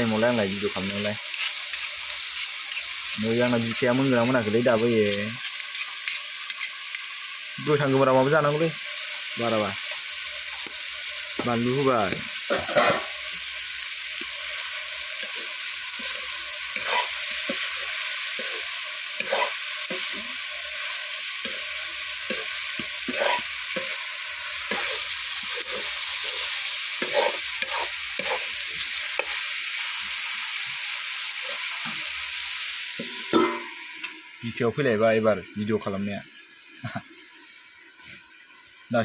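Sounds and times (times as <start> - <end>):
chicken sizzling in a pan: 0.0 - 37.9
metal spatula scraping a pan: 0.9 - 7.1, 12.5 - 13.3, 14.2 - 29.5.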